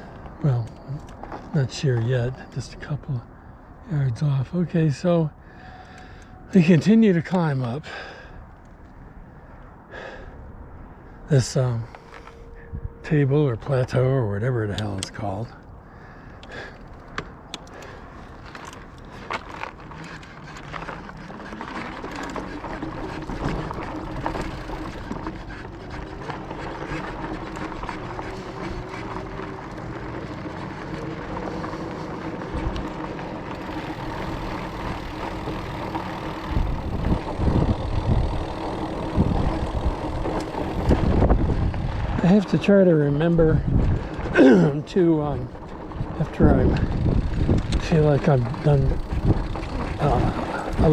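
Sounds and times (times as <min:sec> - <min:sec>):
tyre noise on dirt road: 0:00.0 - 0:50.9
electric bike motor whining: 0:16.4 - 0:42.5, 0:45.4 - 0:50.9
low rumbling bursts: 0:22.6 - 0:50.9.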